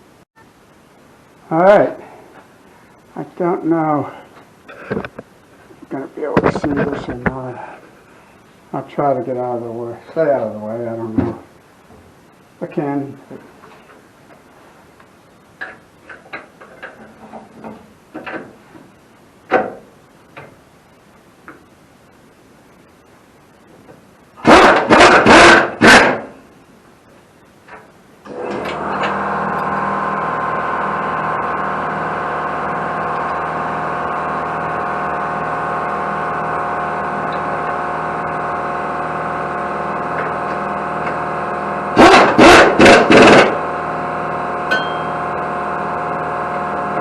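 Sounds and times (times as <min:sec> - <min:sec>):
air compressor motor hum: 0:28.3 - 0:47.0.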